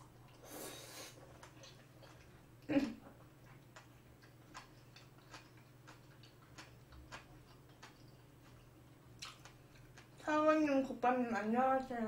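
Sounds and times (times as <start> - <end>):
low steady hum: 0.0 - 12.0
chewing with mouth clicks: 1.1 - 10.2.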